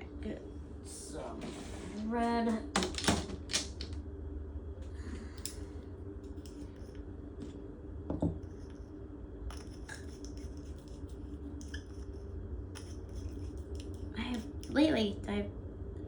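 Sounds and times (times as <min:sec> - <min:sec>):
steady low hum: 0:00.0 - 0:16.0
glass bottle clicks and scrapes: 0:11.6 - 0:12.1.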